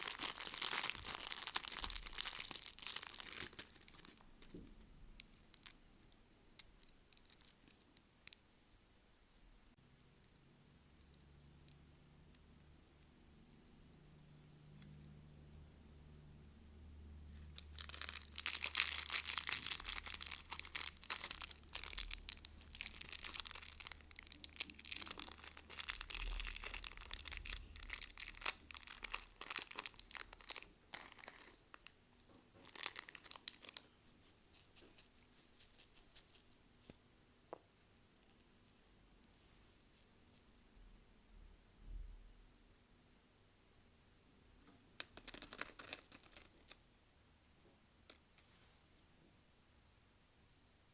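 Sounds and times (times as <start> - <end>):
candy wrapper crackling: 0.0 - 4.4, 17.4 - 39.2, 44.9 - 46.8.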